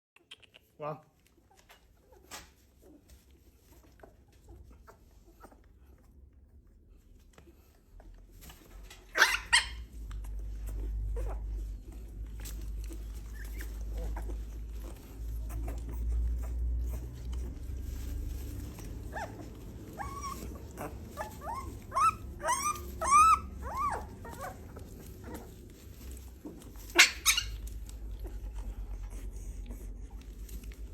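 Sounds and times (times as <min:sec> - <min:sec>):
dog whining yelps: 0:09.1 - 0:09.9, 0:19.1 - 0:25.4, 0:26.9 - 0:27.6.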